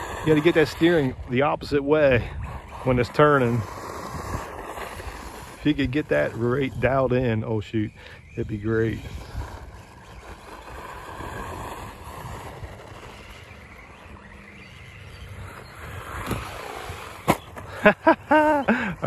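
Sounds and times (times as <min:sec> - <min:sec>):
tyres rushing over dirt: 0:00.0 - 0:19.0
electric motor whine: 0:08.6 - 0:17.6.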